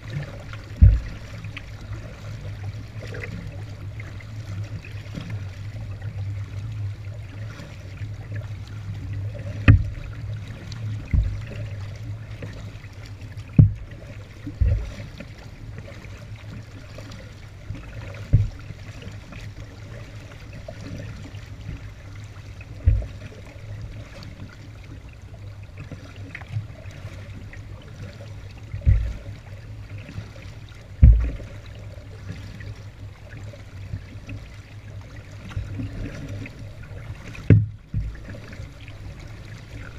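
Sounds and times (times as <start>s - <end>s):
water dripping from paddle: 0.0s - 39.9s
low rumble: 0.4s - 1.8s, 30.8s - 32.0s
thumps against kayak hull: 0.6s - 1.7s, 9.4s - 11.8s, 13.3s - 15.0s, 18.2s - 18.7s, 22.7s - 23.4s, 28.7s - 29.4s, 30.9s - 31.6s, 37.2s - 38.6s.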